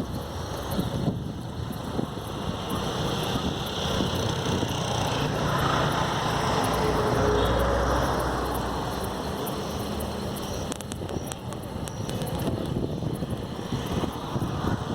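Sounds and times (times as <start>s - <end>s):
motor vehicle passing by: 1.9s - 10.8s, 13.3s - 14.9s.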